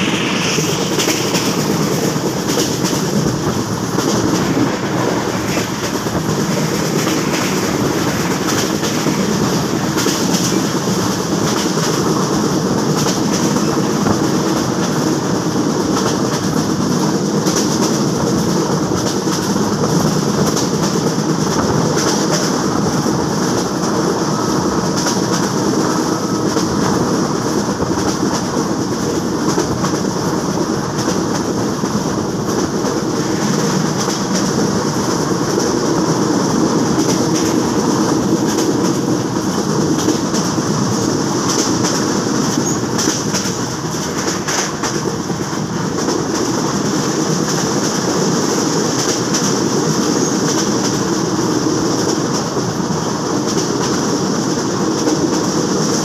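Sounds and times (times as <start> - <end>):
train wheels clicking: 0.0 - 56.0
train wheels rushing on rail: 0.0 - 56.0.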